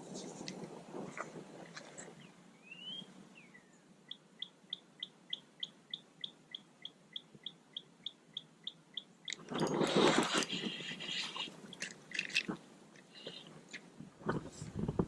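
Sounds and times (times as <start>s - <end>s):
bird singing faintly: 2.0s - 12.5s.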